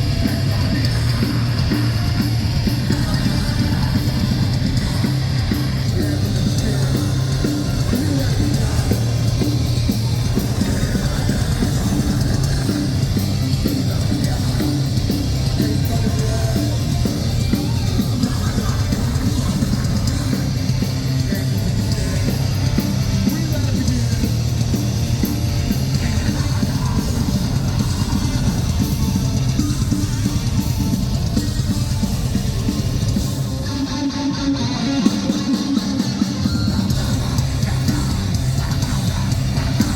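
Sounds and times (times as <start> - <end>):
distorted guitars: 0.0 - 39.9
pounding drum kit: 0.0 - 39.9.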